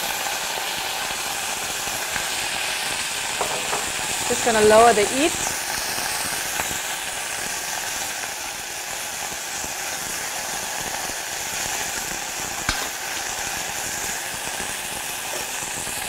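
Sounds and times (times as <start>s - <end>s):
onions sizzling in hot oil: 0.0s - 16.0s
sharp knock: 3.4s - 4.0s, 12.7s - 12.9s.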